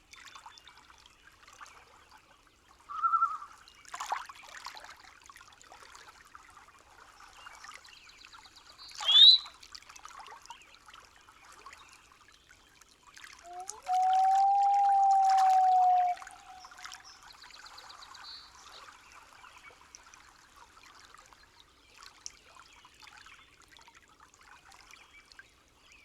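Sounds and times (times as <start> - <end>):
faint trickling water: 0.0 - 26.0
brief high call: 13.5 - 16.9.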